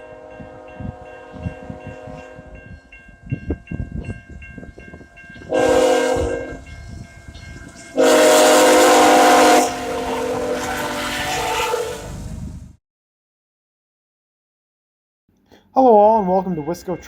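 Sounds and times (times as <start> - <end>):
locomotive air horn: 0.0 - 2.6, 5.5 - 6.7, 7.9 - 12.3
crossing bell ringing: 0.0 - 11.8, 16.1 - 17.0.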